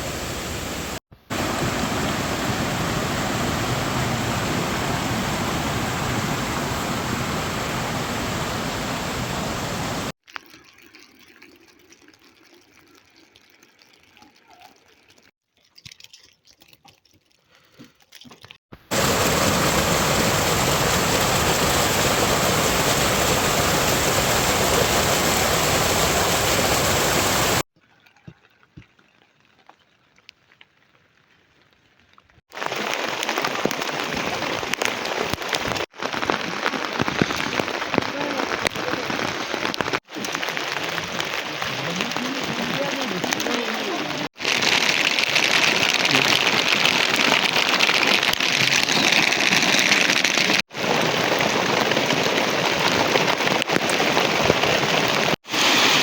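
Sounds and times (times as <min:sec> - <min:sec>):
steady rain: 0:00.0 - 0:10.2, 0:18.9 - 0:27.7, 0:32.5 - 0:56.0.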